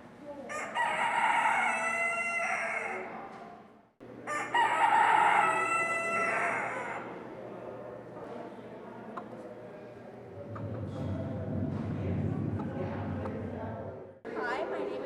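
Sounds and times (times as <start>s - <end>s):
rooster crowing: 0.5s - 3.1s, 4.2s - 7.1s.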